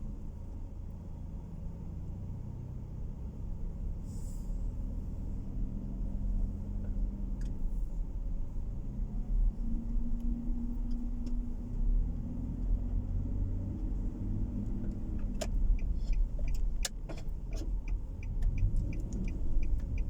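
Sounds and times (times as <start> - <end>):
car interior road noise: 0.0 - 20.0
brief hiss: 4.0 - 4.7.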